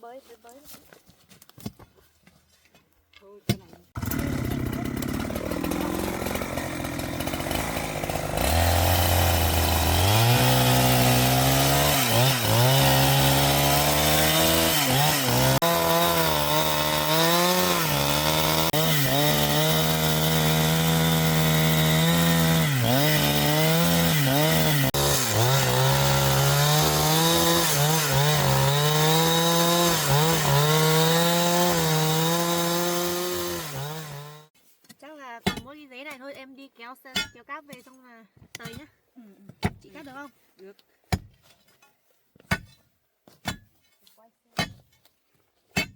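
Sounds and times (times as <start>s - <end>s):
chainsaw cutting wood: 3.5s - 34.6s.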